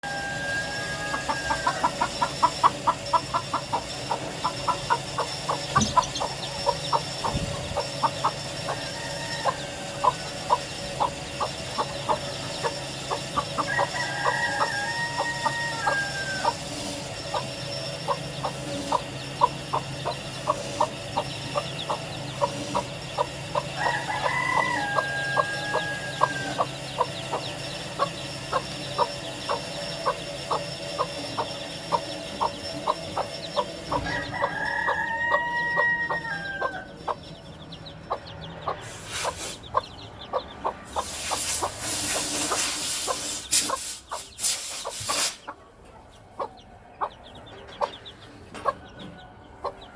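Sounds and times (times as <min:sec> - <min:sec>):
rooster crowing: 0:00.0 - 0:04.0, 0:04.6 - 0:18.0, 0:21.5 - 0:31.3, 0:32.0 - 0:38.7
hen clucking: 0:00.0 - 0:49.9.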